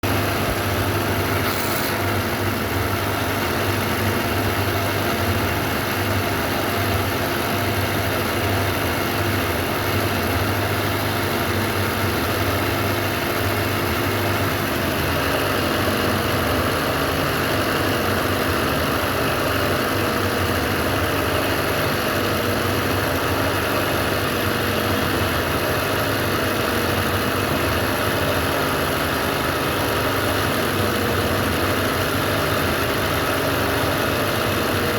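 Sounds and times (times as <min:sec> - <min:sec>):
sewing machine running: 0:01.0 - 0:02.7.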